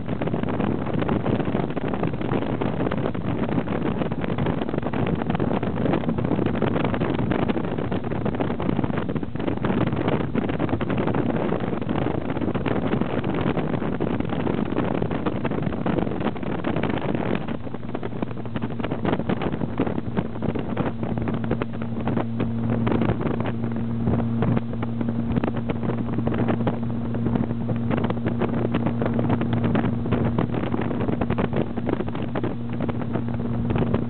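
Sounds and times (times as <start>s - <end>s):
low mechanical hum: 0.0s - 34.0s
strong wind buffeting microphone: 0.0s - 34.0s.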